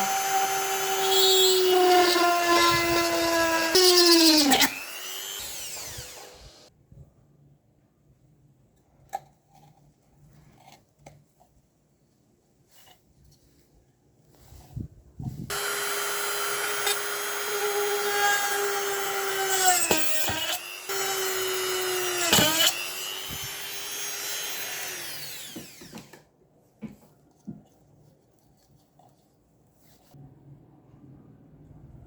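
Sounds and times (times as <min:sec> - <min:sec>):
small electric motor whining: 0:00.0 - 0:06.7, 0:15.5 - 0:26.2.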